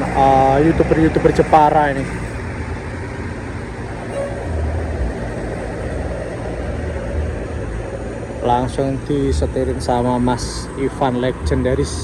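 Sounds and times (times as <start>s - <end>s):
diesel bus engine idling: 0.0s - 12.0s.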